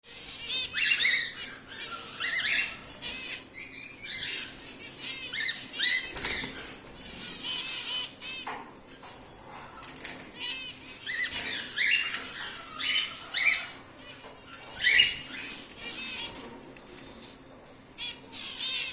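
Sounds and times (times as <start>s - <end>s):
cockatiels chirping: 0.1s - 18.9s.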